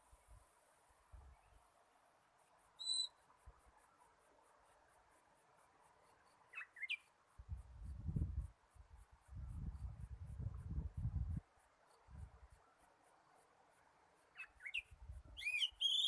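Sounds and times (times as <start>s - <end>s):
bird whistling: 2.8s - 3.2s, 14.4s - 16.0s.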